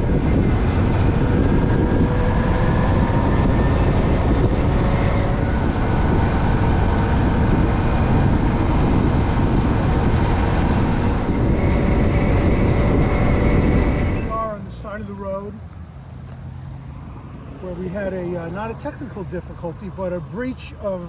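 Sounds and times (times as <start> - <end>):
motorcycle engine drone: 0.0 - 15.0
wind and road noise: 0.0 - 21.0.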